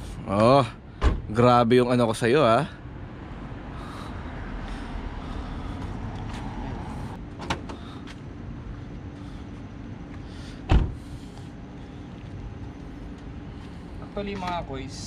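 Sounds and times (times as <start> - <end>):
steady low rumble: 0.0 - 15.0
loud thump: 1.0 - 1.3, 10.7 - 11.0.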